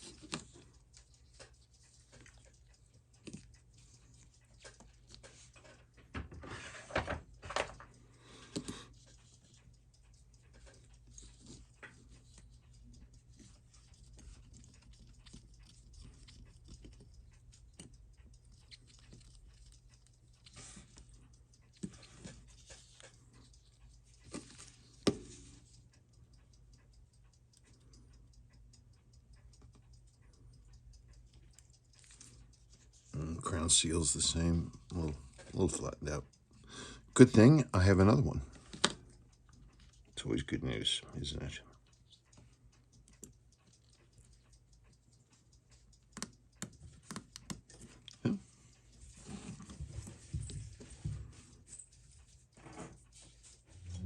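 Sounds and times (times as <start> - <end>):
clicks and taps of watch tools: 0.0 - 53.6
steady low hum: 0.0 - 54.0.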